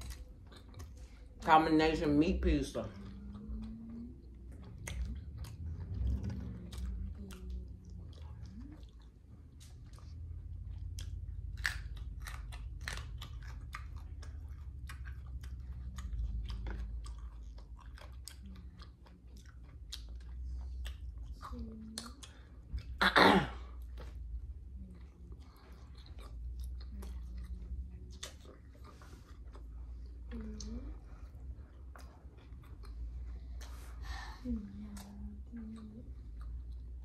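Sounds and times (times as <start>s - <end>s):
person chewing pizza: 0.0s - 1.4s, 2.6s - 37.0s
crunching bite: 11.0s - 14.0s.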